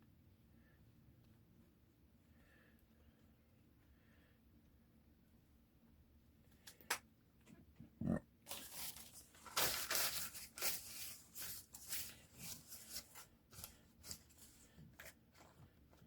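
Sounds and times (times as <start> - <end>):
newspaper tearing: 8.5 - 15.1.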